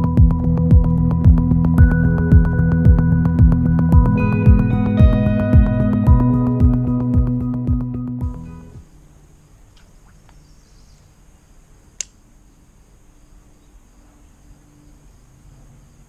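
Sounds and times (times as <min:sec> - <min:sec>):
sharp click: 0:12.0 - 0:12.2.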